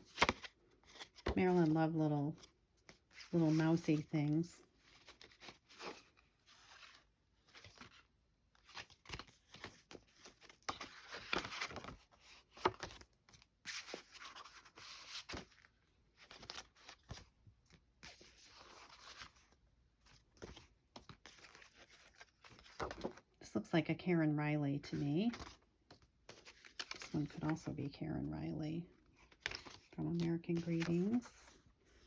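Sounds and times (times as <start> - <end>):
paper cards rustling: 2.4 - 13.1, 18.0 - 23.2, 25.0 - 27.8, 29.1 - 32.0.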